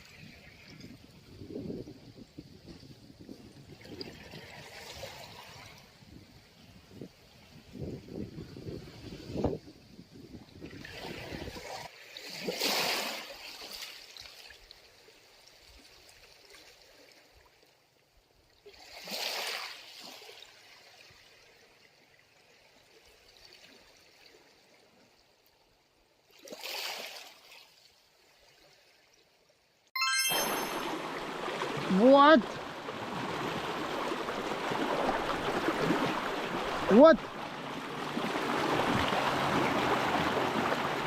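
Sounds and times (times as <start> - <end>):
small waves washing over rocks: 31.0 - 41.0.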